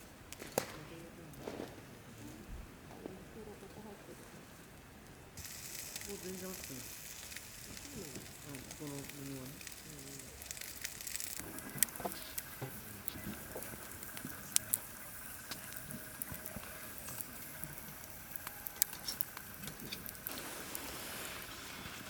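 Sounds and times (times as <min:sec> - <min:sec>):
wood fire crackling: 0:00.0 - 0:22.0
light pattering: 0:05.4 - 0:22.0.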